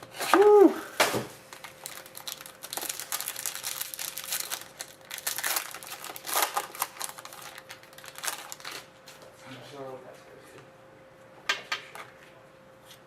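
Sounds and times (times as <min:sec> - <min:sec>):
faint steady hum: 0:00.0 - 0:13.0
foil wrapper crinkling: 0:01.4 - 0:08.9.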